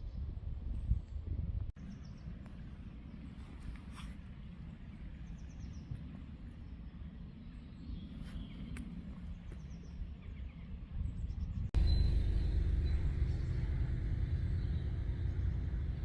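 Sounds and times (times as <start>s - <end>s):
low steady rumble: 0.0s - 16.0s
faint bird chirps: 4.8s - 16.0s.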